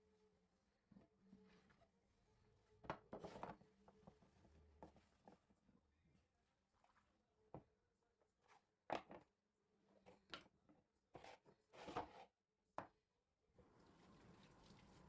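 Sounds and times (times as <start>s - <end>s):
tap water running: 13.6s - 15.0s.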